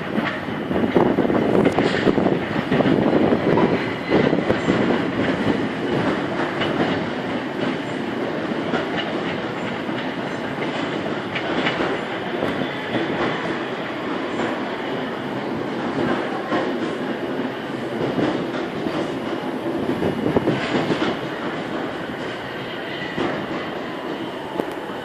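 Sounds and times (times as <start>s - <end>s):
train wheels clickety-clack on rails: 0.0s - 25.0s.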